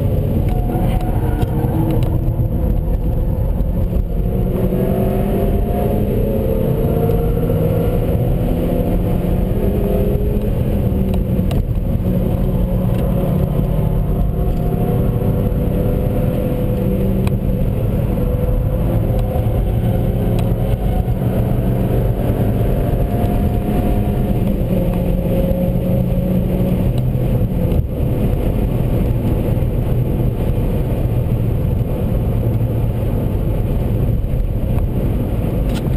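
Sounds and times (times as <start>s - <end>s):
car engine running: 0.0s - 35.9s
road noise: 0.0s - 35.9s.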